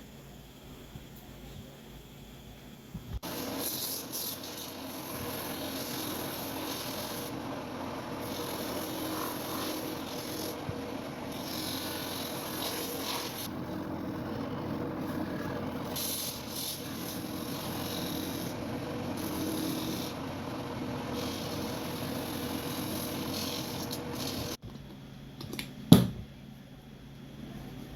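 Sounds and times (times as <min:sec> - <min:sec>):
sanding machine grinding: 0:03.2 - 0:24.6.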